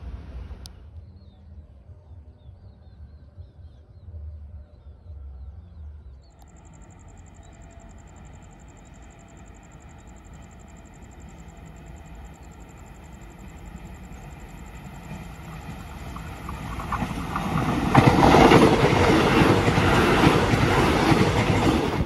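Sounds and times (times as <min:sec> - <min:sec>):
bird chirps: 0:06.3 - 0:17.5
distant train approaching: 0:06.3 - 0:22.0
high pulsing whine: 0:06.4 - 0:22.0
wind rumbling on microphone: 0:06.5 - 0:22.0.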